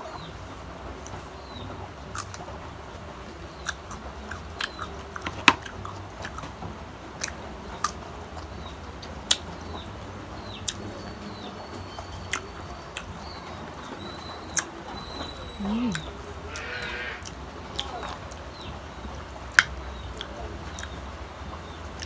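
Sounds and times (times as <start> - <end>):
crunching and chewing mango: 1.0 - 22.0
faint bird chirps: 9.6 - 19.1.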